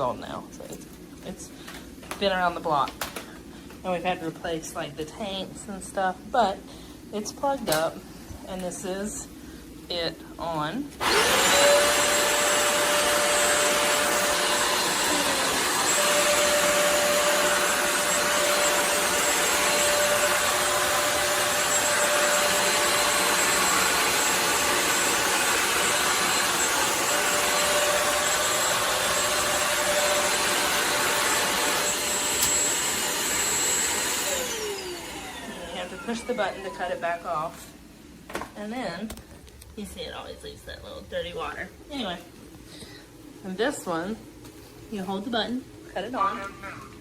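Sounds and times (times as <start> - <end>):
floor cleaner motor whine: 11.0 - 37.7.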